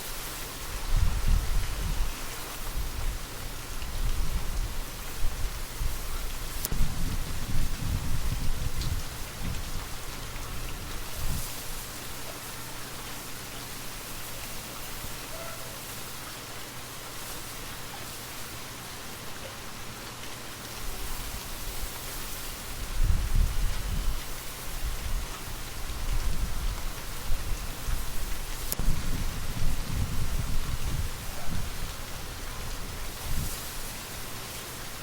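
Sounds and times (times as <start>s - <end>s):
light rain falling: 0.0s - 35.0s
wind gusts: 0.6s - 11.7s, 22.7s - 34.0s.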